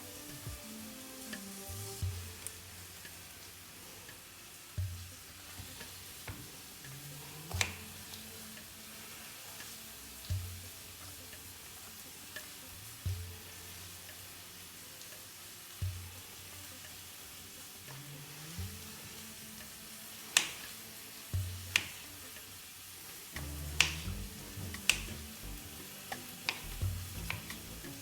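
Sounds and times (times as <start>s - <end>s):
food sizzling in a pan: 0.0s - 28.0s
soft background music: 0.0s - 28.0s
utensil clicks: 5.6s - 8.7s, 19.6s - 20.8s, 23.4s - 28.0s.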